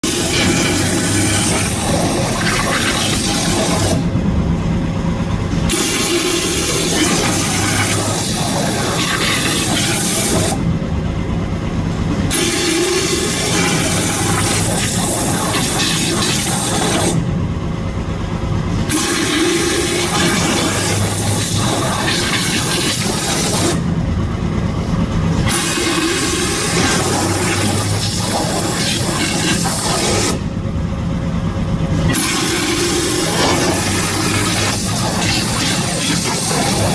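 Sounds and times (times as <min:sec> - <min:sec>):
waterjet hissing: 0:00.0 - 0:04.1, 0:05.6 - 0:10.6, 0:12.3 - 0:17.2, 0:18.8 - 0:23.9, 0:25.4 - 0:30.5, 0:32.0 - 0:36.9
machine low rumble: 0:00.0 - 0:36.9.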